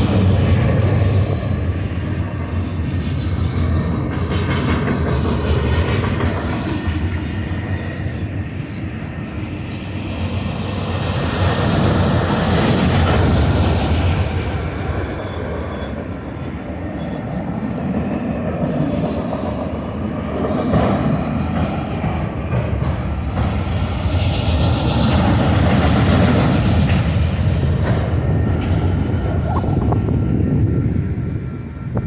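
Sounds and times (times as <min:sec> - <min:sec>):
freight train passing: 0:00.0 - 0:32.0.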